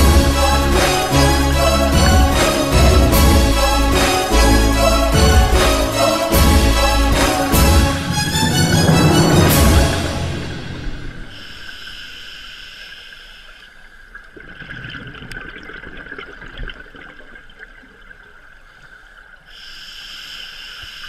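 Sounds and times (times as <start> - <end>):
underwater bubbling and gurgling: 13.6 - 19.5.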